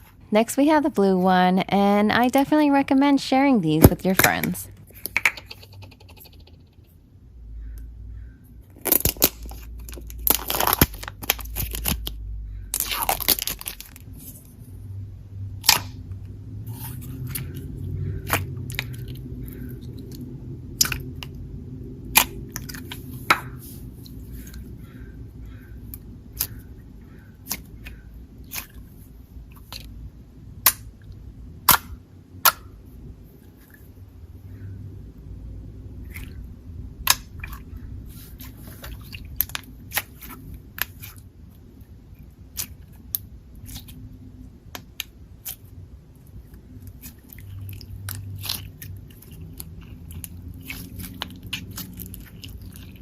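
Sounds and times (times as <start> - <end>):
slime squishing and stretching: 8.6 - 14.7, 15.6 - 31.0, 35.9 - 53.0.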